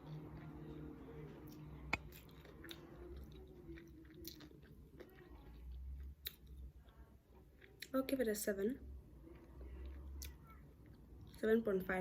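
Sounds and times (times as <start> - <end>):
person chewing crunchy food: 1.4 - 6.6.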